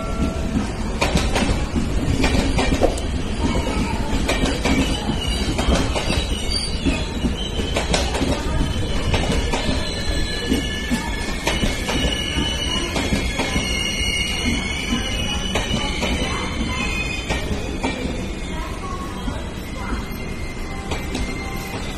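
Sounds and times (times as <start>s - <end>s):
train wheels rumbling on rail: 0.0s - 21.9s.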